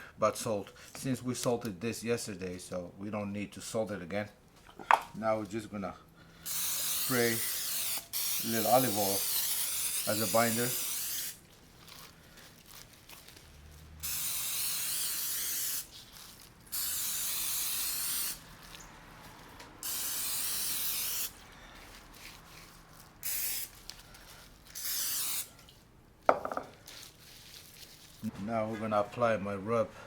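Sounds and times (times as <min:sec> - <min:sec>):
oil sprayer hissing: 0:06.5 - 0:11.4.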